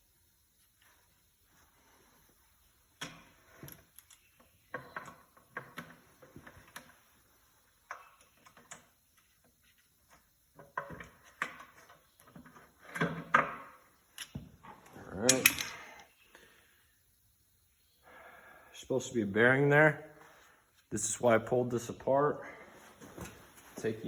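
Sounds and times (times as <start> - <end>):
metal parts clicking and clinking: 14.2 - 16.0.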